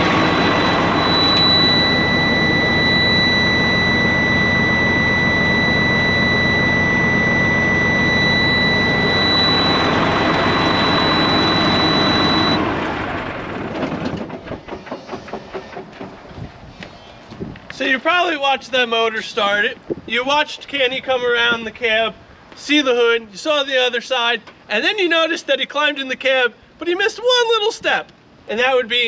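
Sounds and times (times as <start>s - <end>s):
high whine: 0.0s - 14.1s
diesel truck engine running: 0.0s - 16.4s.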